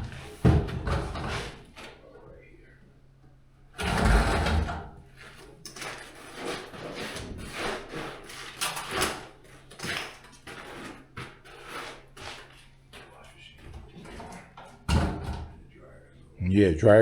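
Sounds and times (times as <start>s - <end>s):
irregular scrapes and knocks: 0.0s - 2.0s, 3.8s - 14.8s.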